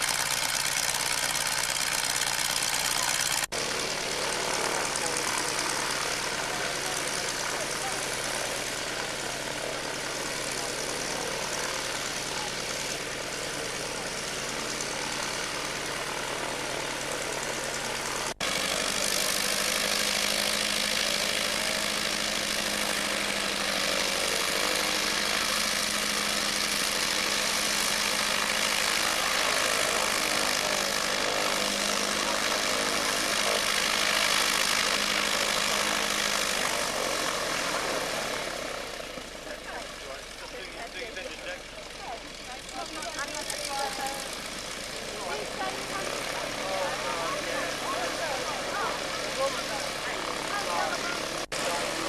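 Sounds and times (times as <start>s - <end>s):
propeller aircraft engine droning: 0.0s - 52.0s.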